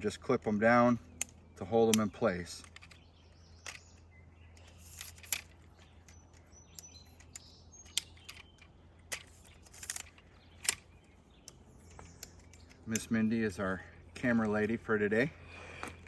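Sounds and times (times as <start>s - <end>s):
tripod leg clips snapping shut: 1.2s - 4.0s, 4.6s - 10.9s
faint bird chirps: 2.8s - 14.4s.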